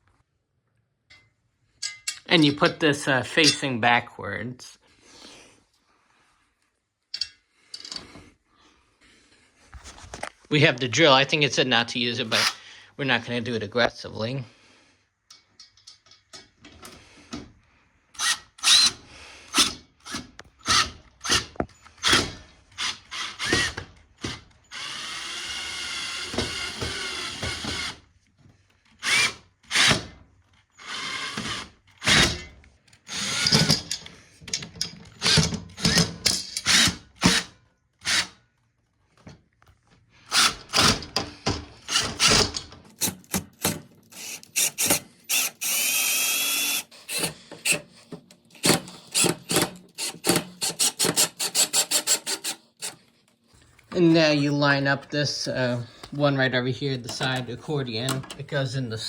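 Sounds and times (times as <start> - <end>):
power drill short bursts: 18.2 - 21.4, 29.0 - 30.0, 30.8 - 32.4, 41.8 - 47.9, 48.6 - 53.0.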